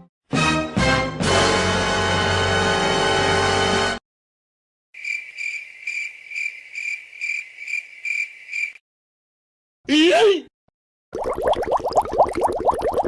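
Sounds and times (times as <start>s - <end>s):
crickets chirping: 5.0s - 8.8s.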